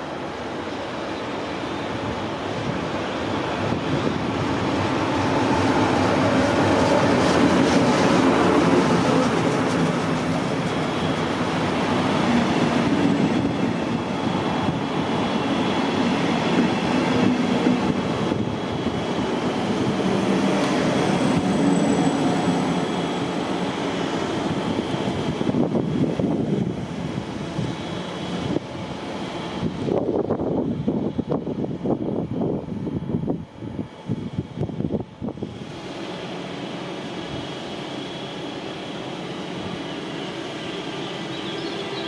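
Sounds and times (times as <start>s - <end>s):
train wheels rumbling on rails: 0.0s - 42.0s
high wheel squeal: 21.0s - 23.6s.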